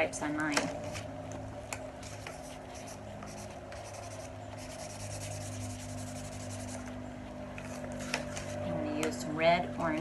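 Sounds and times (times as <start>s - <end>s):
marker scratching on cardboard: 2.0s - 7.0s.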